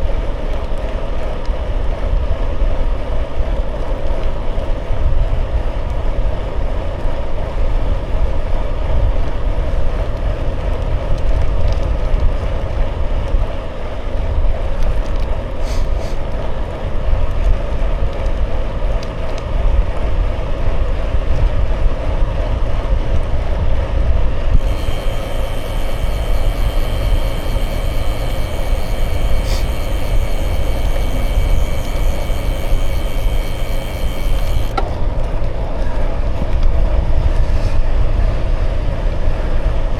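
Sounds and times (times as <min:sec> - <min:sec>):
high-pitched whine: 0:24.5 - 0:35.8
bicycle tyres rolling: 0:24.5 - 0:37.8.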